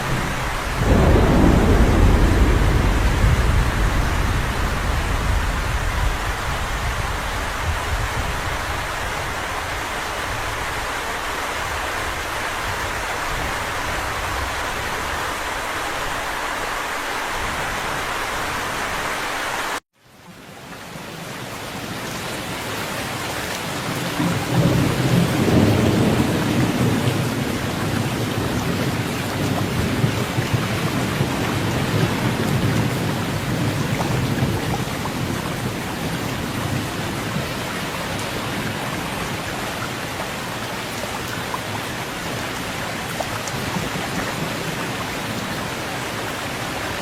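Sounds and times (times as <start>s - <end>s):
low rumble of thunder: 0.0s - 10.7s, 23.7s - 40.0s
heavy rain: 0.0s - 47.0s.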